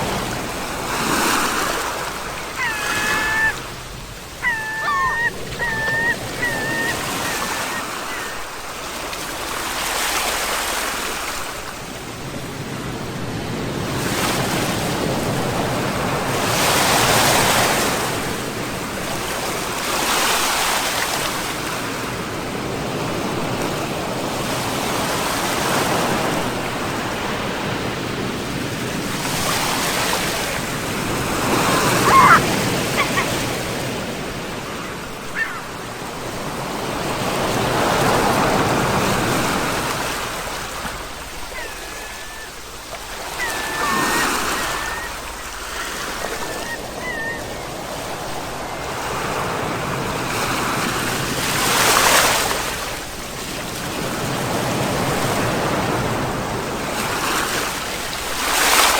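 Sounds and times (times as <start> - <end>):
sea waves breaking on shore: 0.0 - 58.9
brief high call: 2.6 - 3.8.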